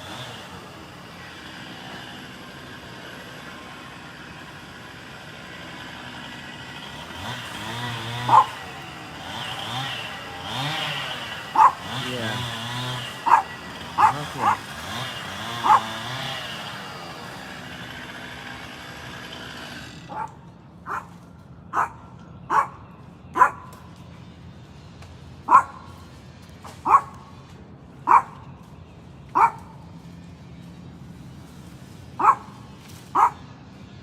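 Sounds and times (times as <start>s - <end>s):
dog barking: 8.2s - 8.6s, 11.5s - 12.4s, 13.2s - 14.7s, 15.6s - 16.0s, 20.1s - 23.7s, 25.5s - 25.9s, 26.8s - 27.2s, 28.0s - 28.4s, 29.3s - 29.8s, 32.2s - 33.4s.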